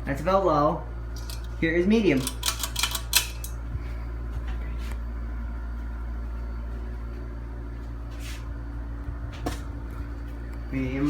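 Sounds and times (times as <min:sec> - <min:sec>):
ceiling fan motor hum: 0:00.0 - 0:11.0.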